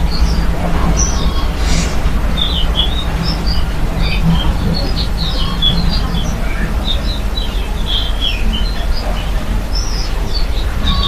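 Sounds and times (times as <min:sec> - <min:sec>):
small birds chirping: 0:00.0 - 0:11.0
steady low rumble: 0:00.0 - 0:11.0.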